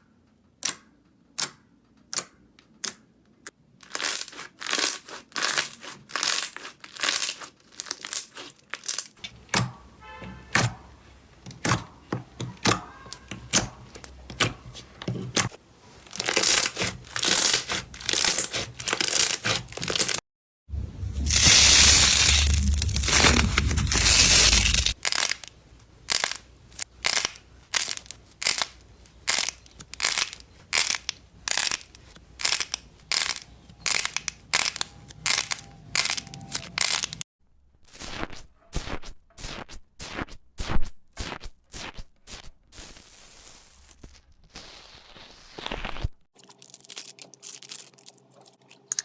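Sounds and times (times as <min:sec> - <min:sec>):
crunchy slime crunching and crackling: 0:03.8 - 0:09.2, 0:12.6 - 0:20.2, 0:21.0 - 0:37.2, 0:41.2 - 0:49.0.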